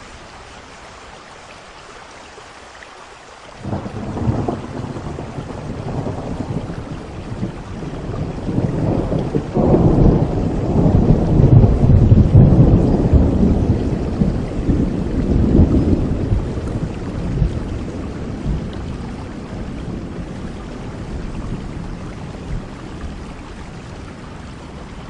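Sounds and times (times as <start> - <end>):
steady rain: 0.0 - 25.0
rolling thunder: 3.6 - 25.0.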